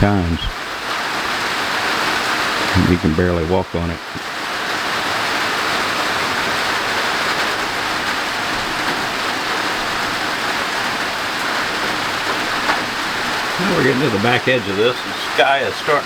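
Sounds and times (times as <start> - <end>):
heavy rain on a roof: 0.0 - 16.0.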